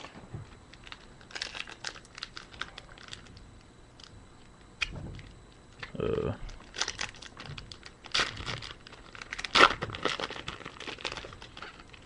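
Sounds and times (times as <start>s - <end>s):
foil wrapper crinkling: 0.7s - 3.4s, 6.5s - 12.0s.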